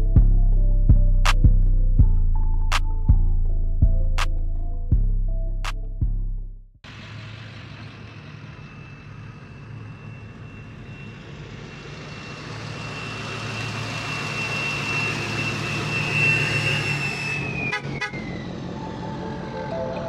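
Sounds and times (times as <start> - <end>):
truck engine rumble: 6.8 - 20.0
high-pitched whistle: 8.6 - 20.0.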